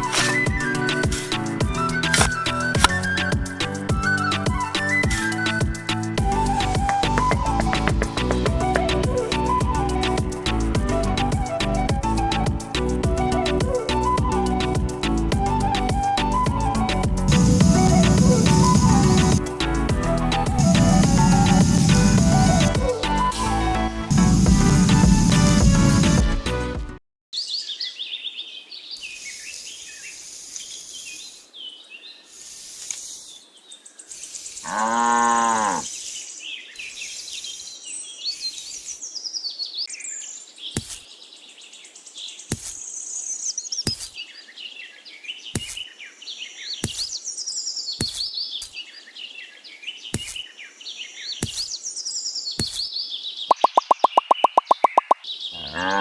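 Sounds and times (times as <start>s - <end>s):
birds chirping and singing: 0.0s - 10.5s, 53.5s - 55.2s.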